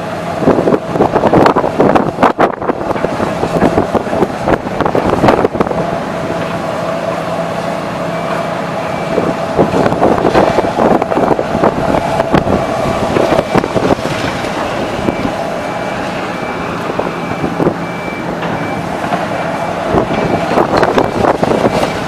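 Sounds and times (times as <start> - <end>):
diesel machinery running: 0.0 - 22.0
reversing alarm beeping: 6.8 - 22.0.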